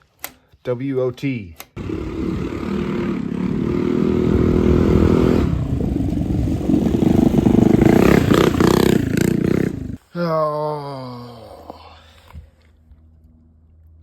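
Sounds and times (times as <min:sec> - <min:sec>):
mini bike engine at full throttle: 0:01.8 - 0:10.0.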